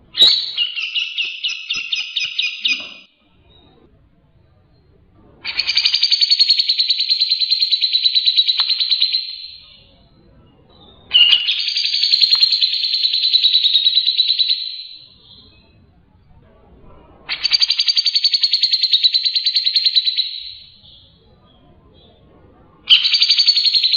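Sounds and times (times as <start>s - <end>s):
bird singing fast trills: 0.1s - 3.1s, 5.4s - 10.0s, 10.8s - 15.7s, 17.3s - 21.2s, 22.9s - 23.9s.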